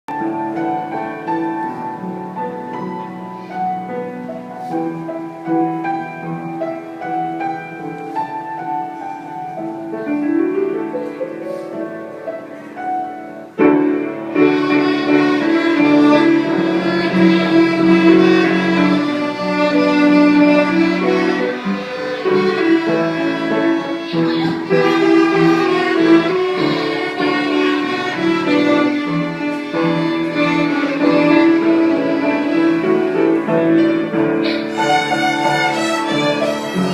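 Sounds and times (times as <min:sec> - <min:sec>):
piano accompaniment: 0:00.0 - 0:36.9
violin playing: 0:14.2 - 0:36.9.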